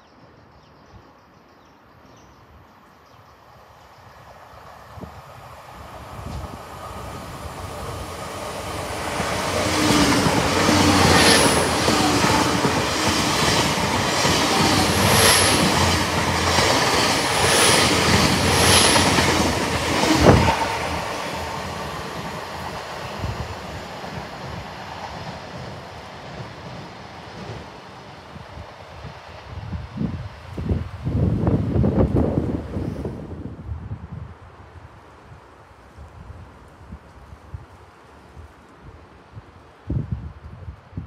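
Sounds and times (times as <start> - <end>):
diesel train rumbling past: 3.5 - 35.3.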